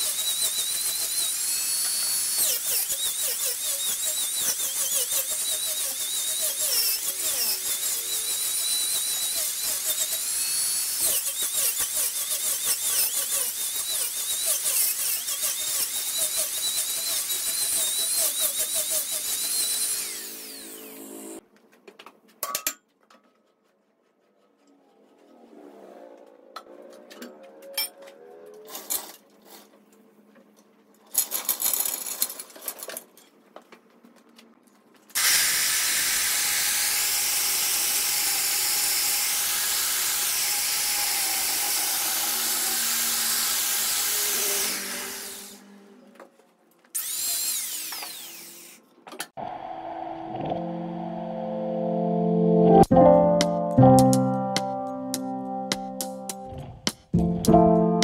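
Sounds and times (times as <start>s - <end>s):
wood lathe tool scraping: 0.0s - 21.4s.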